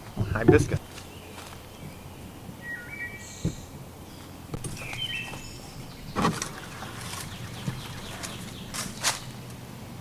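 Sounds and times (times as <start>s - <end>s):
bird whistled call: 2.6s - 3.7s
brief rustle: 8.1s - 9.4s.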